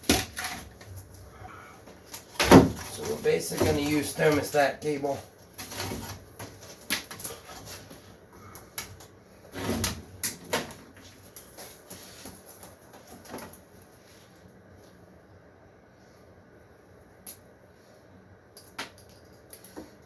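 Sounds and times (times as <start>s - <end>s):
cable rustling: 0.0s - 15.0s.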